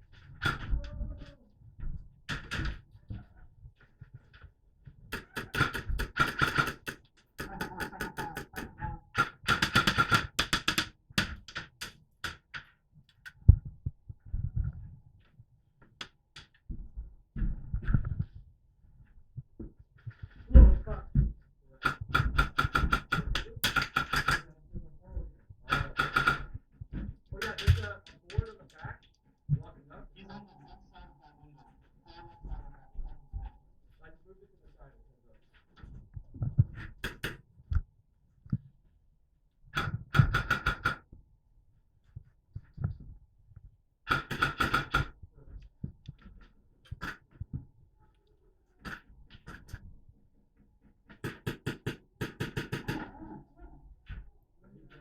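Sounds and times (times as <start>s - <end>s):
airsoft rifle rapid shots: 5.2s - 8.6s, 9.2s - 10.8s, 21.9s - 24.5s, 25.7s - 26.5s, 44.1s - 45.1s.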